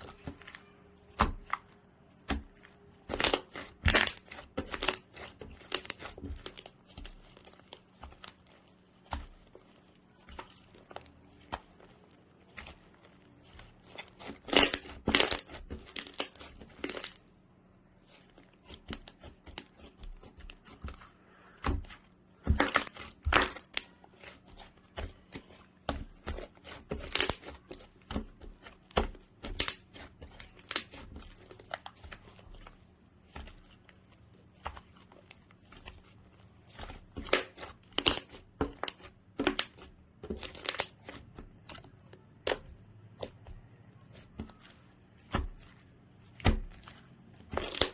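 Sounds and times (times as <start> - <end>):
slime popping and crackling: 2.2 - 17.2, 22.4 - 32.7, 36.8 - 41.8, 46.3 - 47.9.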